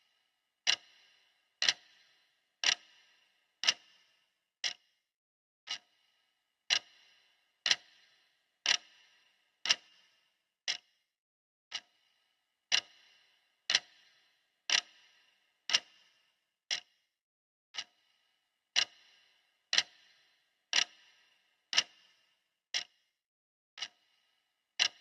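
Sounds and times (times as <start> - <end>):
clock ticking: 0.6 - 4.0, 5.7 - 5.9, 6.7 - 10.0, 12.7 - 14.1, 14.7 - 15.1, 15.7 - 16.1, 18.7 - 20.1, 20.7 - 22.1, 24.8 - 25.0.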